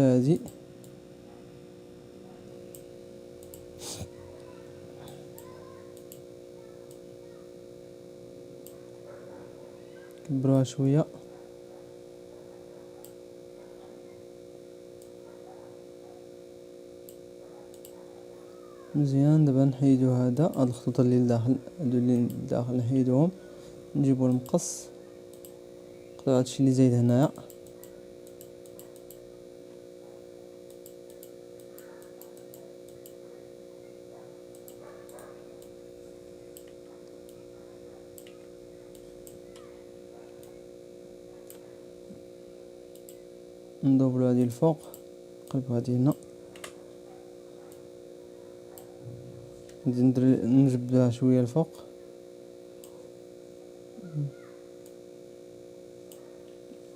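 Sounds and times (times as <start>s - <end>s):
electrical hum: 0.0s - 56.9s
computer mouse clicking: 2.7s - 4.0s, 5.0s - 6.2s, 17.0s - 18.0s, 25.3s - 25.6s, 27.5s - 29.2s, 30.7s - 33.2s, 34.5s - 35.8s, 36.5s - 37.4s, 38.2s - 39.7s, 41.4s - 41.6s, 42.9s - 43.2s, 44.8s - 46.8s.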